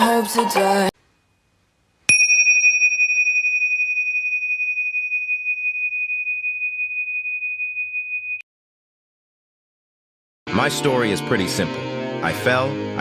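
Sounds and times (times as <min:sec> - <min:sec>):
high ringing chime: 0:02.1 - 0:08.4.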